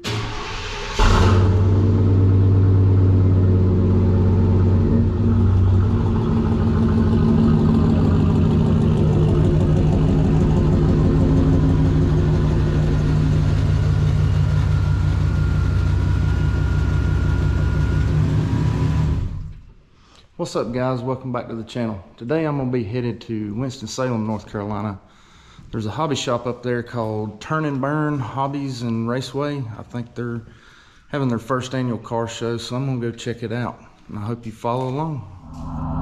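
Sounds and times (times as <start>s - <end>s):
vehicle engine starting and idling: 0.0s - 19.8s.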